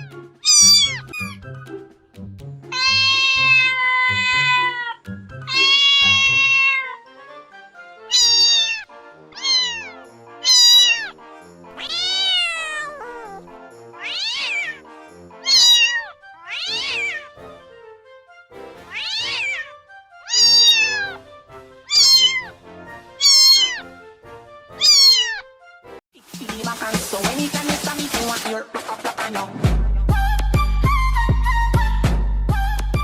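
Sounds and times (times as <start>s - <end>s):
kittens meowing: 0.0s - 1.4s, 2.7s - 7.0s, 8.1s - 11.2s, 11.8s - 13.4s, 14.0s - 14.8s, 15.4s - 17.3s, 18.9s - 19.7s, 20.3s - 21.2s, 21.9s - 22.5s, 23.2s - 23.9s, 24.8s - 25.5s
soft background music: 0.0s - 33.0s.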